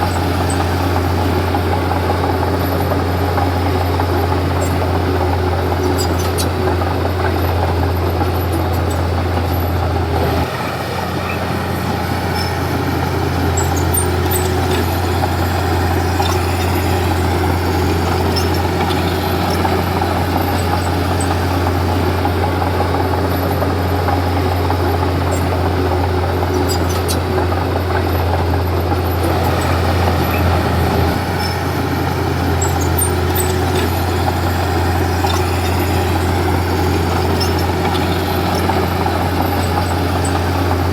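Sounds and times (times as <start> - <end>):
bulldozer diesel engine under load: 0.0 - 40.9
faint clicks from tracks: 13.5 - 40.9.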